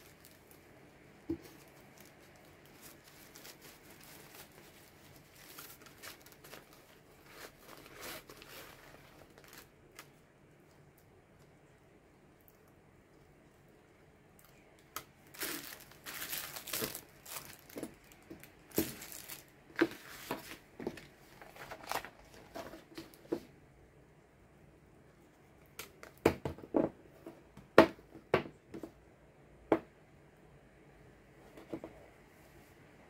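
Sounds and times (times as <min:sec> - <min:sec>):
packaging crinkling and rustling: 0:00.0 - 0:10.2, 0:14.4 - 0:23.4.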